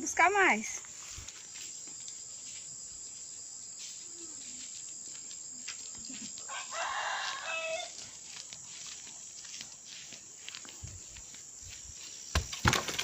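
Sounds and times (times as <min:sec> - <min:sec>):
faint outdoor background: 0:00.0 - 0:13.0
rooster crowing: 0:06.4 - 0:08.1.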